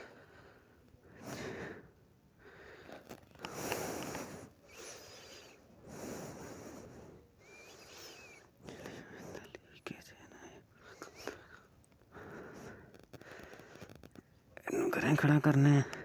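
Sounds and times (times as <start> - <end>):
person breathing: 0.0 - 9.5, 10.8 - 14.0.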